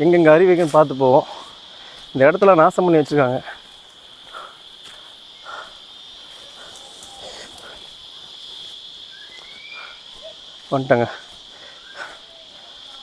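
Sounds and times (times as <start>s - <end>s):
faint distant sounds: 0.0s - 13.0s
insects chirring: 0.0s - 13.0s
faint short rising whistle: 9.1s - 10.0s.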